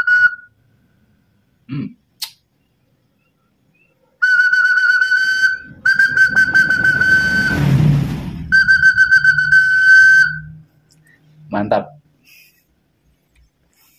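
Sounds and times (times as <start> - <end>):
bird-call whistle trilling: 3.2 - 10.7.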